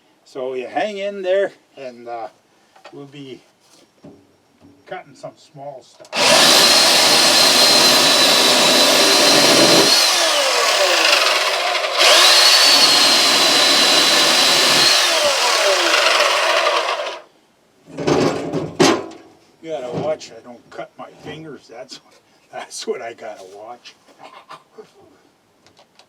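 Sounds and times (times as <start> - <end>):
electric chainsaw cutting wood: 6.2 - 17.3.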